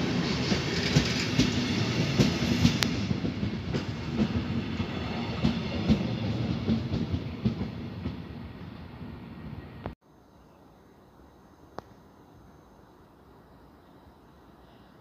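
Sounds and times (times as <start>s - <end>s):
train wheels clacking over rail joints: 0.4s - 8.2s.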